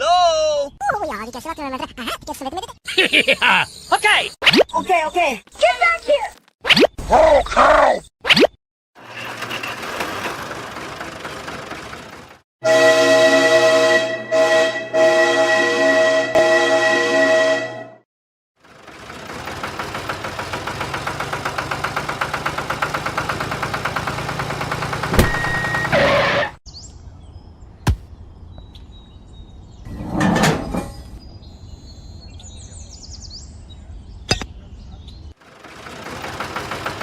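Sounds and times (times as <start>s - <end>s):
small engine running: 9.0s - 12.4s, 18.6s - 26.0s, 35.4s - 37.0s.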